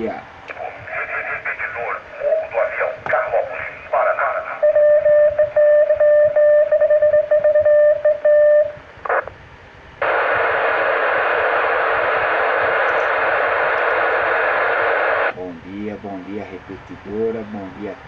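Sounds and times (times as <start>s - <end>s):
radio hiss: 0.0s - 4.9s, 9.0s - 9.4s, 10.0s - 18.0s
morse-like beep tone: 4.6s - 8.7s.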